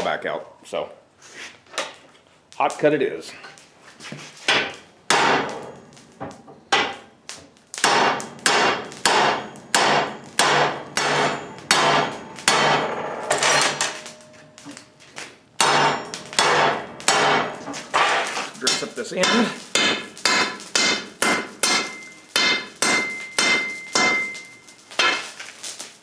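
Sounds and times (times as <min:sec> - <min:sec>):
hammer striking hot steel rod: 0:04.4 - 0:07.1, 0:07.8 - 0:14.8, 0:15.6 - 0:25.3.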